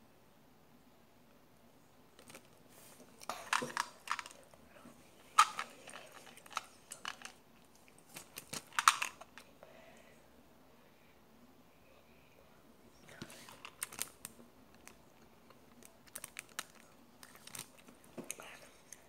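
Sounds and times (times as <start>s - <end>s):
chewing sweets: 5.2s - 9.4s, 14.8s - 19.0s.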